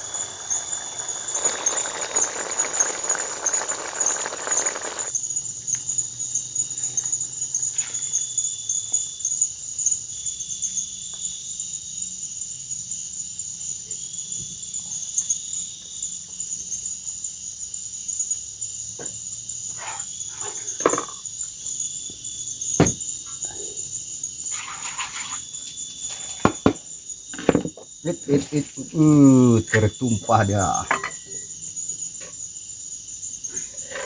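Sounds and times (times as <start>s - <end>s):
forest insects chirring: 0.0s - 34.0s.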